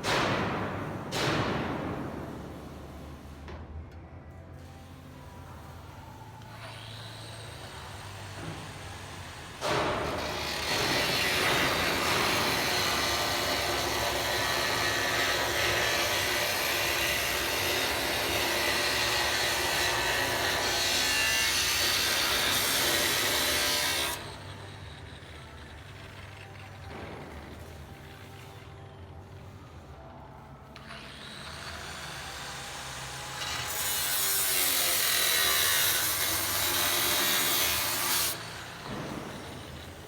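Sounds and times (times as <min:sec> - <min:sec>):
power tool cutting metal: 0:06.5 - 0:28.3, 0:30.8 - 0:40.0.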